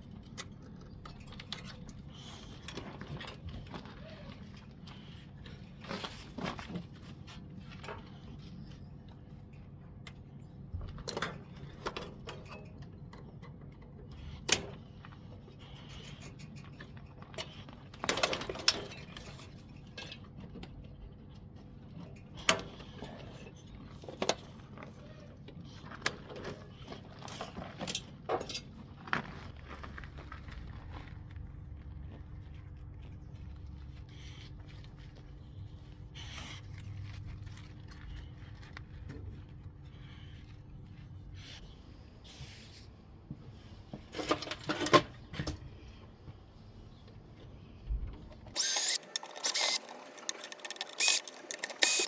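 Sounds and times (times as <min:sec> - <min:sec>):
tools and metal parts clinking: 0:11.0 - 0:14.6, 0:15.9 - 0:20.8, 0:27.2 - 0:28.8, 0:44.1 - 0:45.2, 0:48.5 - 0:52.0.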